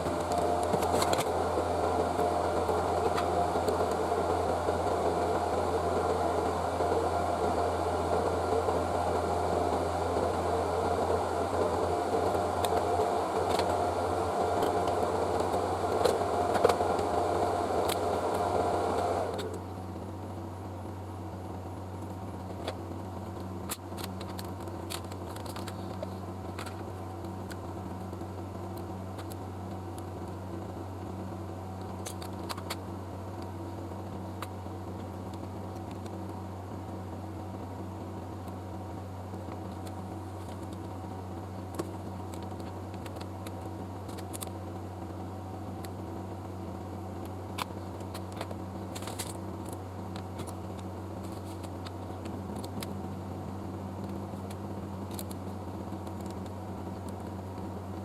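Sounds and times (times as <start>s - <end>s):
electric blower running: 0.0s - 19.8s
low steady hum: 0.0s - 58.0s.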